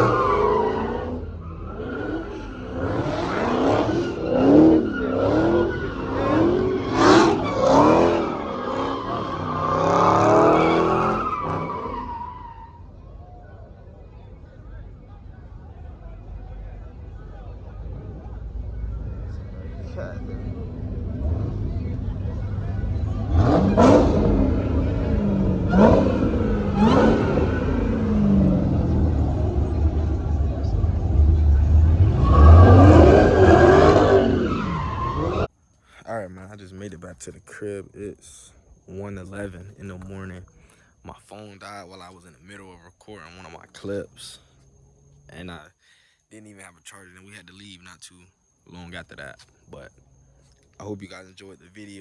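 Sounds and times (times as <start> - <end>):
car engine revving: 0.0 - 13.1, 17.7 - 35.5, 36.4 - 45.7
car tires squealing: 0.0 - 13.7, 19.3 - 35.5
engine idle rumble: 12.9 - 23.4.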